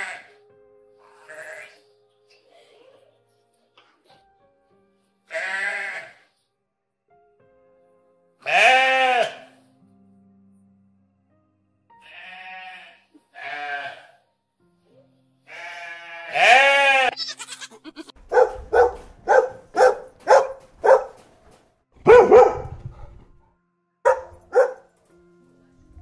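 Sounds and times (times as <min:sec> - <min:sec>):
goat bleating: 0:05.3 - 0:06.2, 0:08.4 - 0:09.5, 0:12.0 - 0:14.2, 0:15.5 - 0:18.2
dog barking: 0:18.2 - 0:21.2, 0:22.0 - 0:23.2, 0:24.0 - 0:24.9.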